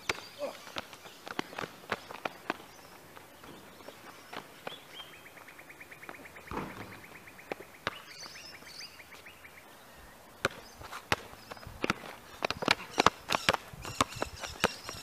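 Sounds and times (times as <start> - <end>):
basketball bouncing on asphalt: 0.0 - 9.4, 10.4 - 15.0
bird chirps: 0.0 - 11.8, 12.6 - 15.0
bird trilling: 12.8 - 15.0.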